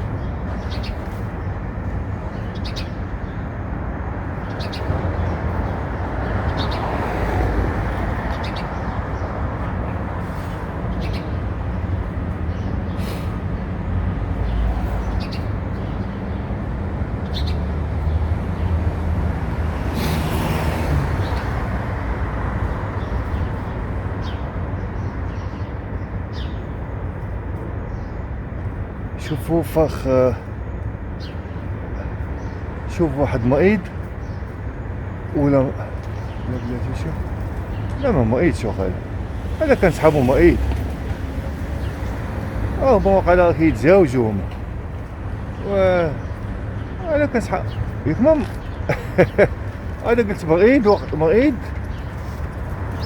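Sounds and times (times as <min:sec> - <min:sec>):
traffic noise: 0:00.0 - 0:53.0
bird chirps: 0:04.4 - 0:07.0, 0:07.9 - 0:13.6, 0:14.3 - 0:16.6.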